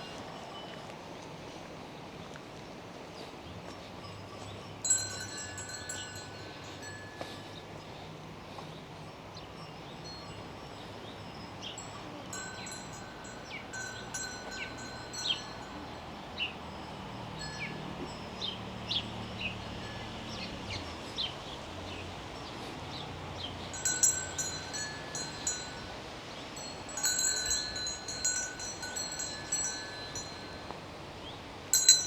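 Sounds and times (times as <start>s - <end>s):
faint ringing bell-like tones: 0.0s - 1.7s, 3.1s - 32.0s
small birds chirping: 4.4s - 30.4s.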